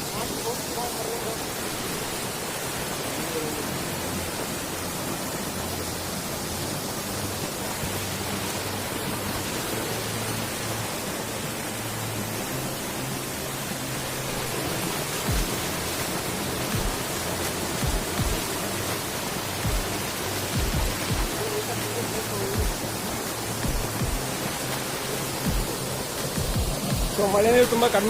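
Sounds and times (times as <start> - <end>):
waterfall rushing: 0.0 - 28.0
low thumps: 15.3 - 15.8, 16.6 - 18.6, 19.6 - 21.4, 22.6 - 22.9, 23.5 - 24.4, 25.4 - 27.2.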